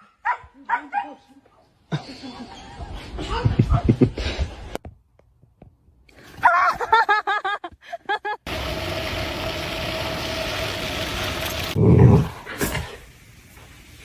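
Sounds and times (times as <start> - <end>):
steady mechanical hum: 8.5 - 11.8.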